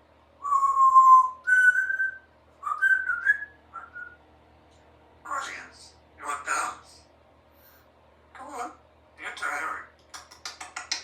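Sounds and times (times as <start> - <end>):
parrot whistling a tune: 0.4 - 4.2.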